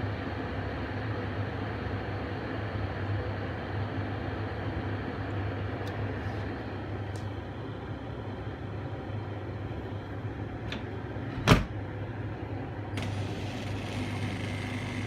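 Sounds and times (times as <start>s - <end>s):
dishwasher humming: 9.7s - 15.0s
dishwasher thump: 11.4s - 11.8s.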